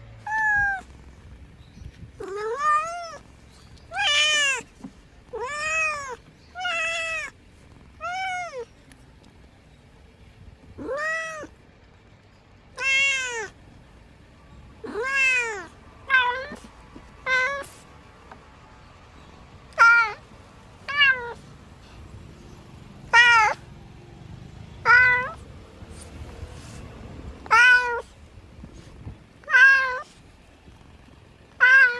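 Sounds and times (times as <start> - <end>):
cat meowing: 0.2 - 1.1, 2.2 - 4.7, 5.3 - 8.7, 10.7 - 11.6, 12.7 - 13.6, 14.8 - 17.8, 19.7 - 20.2, 20.8 - 21.5, 23.1 - 23.7, 24.8 - 25.4, 27.4 - 28.2, 29.4 - 30.2, 31.5 - 31.9.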